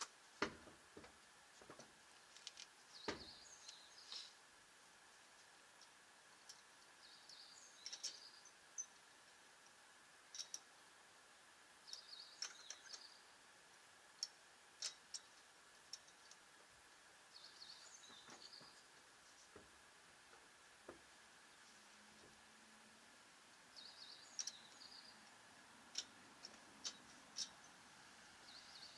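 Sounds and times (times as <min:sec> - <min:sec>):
background hiss: 0:00.0 - 0:28.9
small birds chirping: 0:02.5 - 0:04.4, 0:05.2 - 0:09.3, 0:11.8 - 0:28.9.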